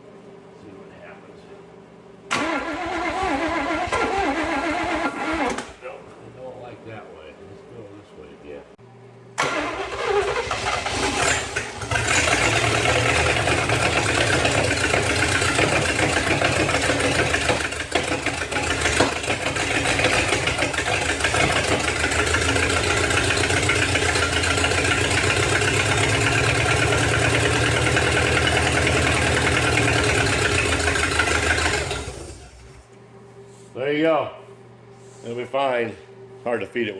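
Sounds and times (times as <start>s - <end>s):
car engine running: 10.9s - 32.8s.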